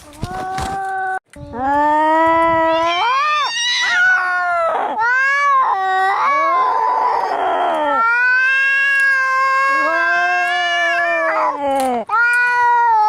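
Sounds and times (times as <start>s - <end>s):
cats yowling in a fight: 2.6s - 13.0s.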